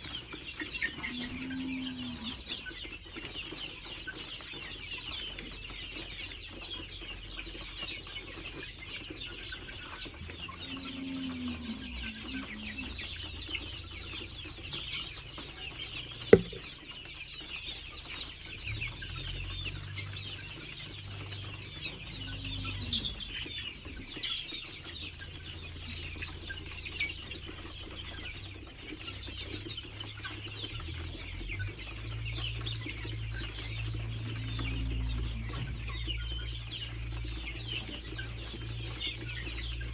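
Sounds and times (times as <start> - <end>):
chickens calling: 0.0 - 39.9
sharp knock: 16.4 - 16.7.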